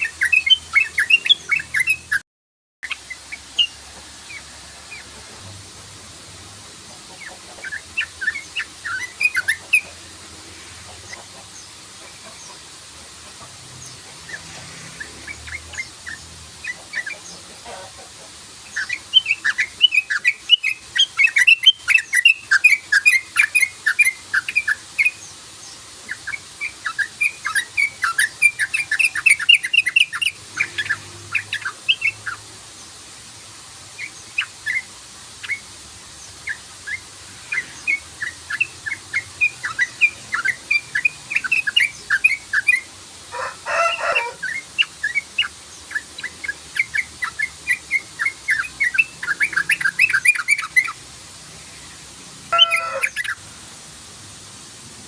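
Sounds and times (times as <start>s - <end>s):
bird calling in rapid runs: 52.5s - 53.4s.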